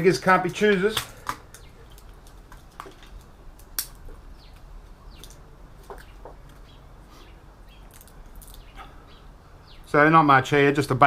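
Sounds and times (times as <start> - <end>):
faint bird chirps: 6.0 - 10.0.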